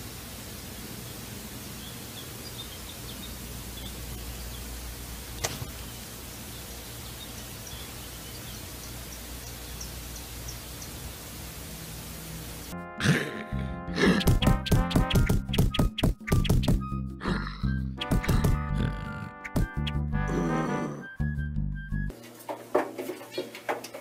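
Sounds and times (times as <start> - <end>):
steady hiss: 0.0 - 12.8.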